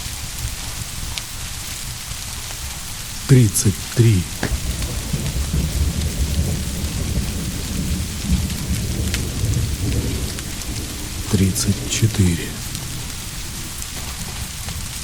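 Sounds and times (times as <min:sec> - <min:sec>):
steady rain: 0:00.0 - 0:15.0
distant thunder rumble: 0:04.4 - 0:15.0.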